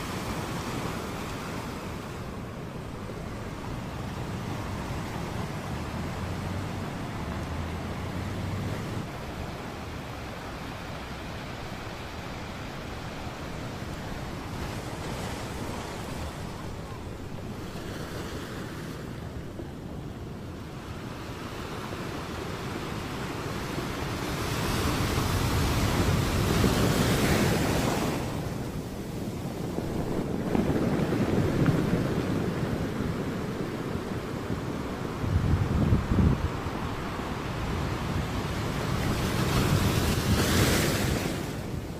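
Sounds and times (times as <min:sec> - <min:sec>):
ocean surf on beach: 0:00.0 - 0:41.9
wind on microphone: 0:24.1 - 0:41.9.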